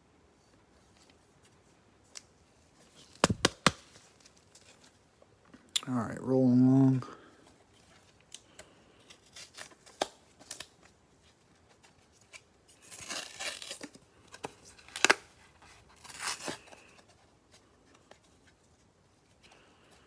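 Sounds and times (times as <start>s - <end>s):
cardboard box tearing and rustling: 12.3s - 16.9s.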